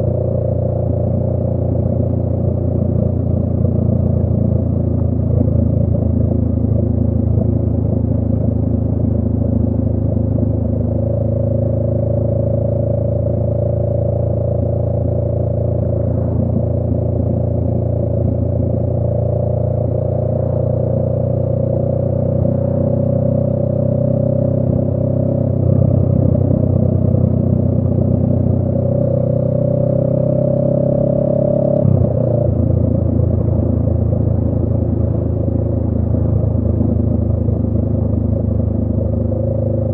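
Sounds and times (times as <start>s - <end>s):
motorcycle engine at road speed: 0.0s - 39.9s.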